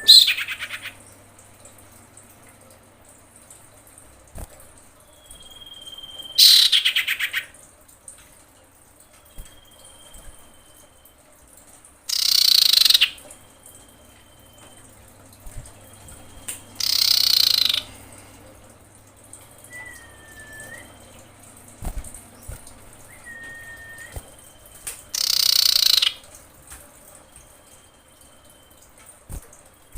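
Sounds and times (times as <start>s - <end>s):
bird harsh hissing calls: 16.8s - 18.2s, 25.2s - 26.1s
bird short curving whistles: 19.7s - 21.0s, 23.1s - 24.2s
bird thin drawn-out whistles: 19.7s - 21.0s, 23.1s - 24.3s.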